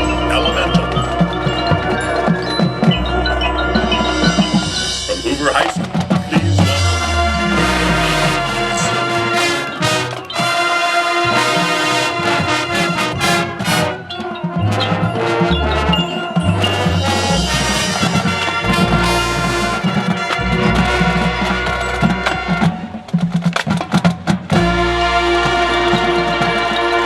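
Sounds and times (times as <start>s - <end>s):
sharp percussion hits: 4.0s - 22.8s
marching band playing: 4.2s - 27.0s.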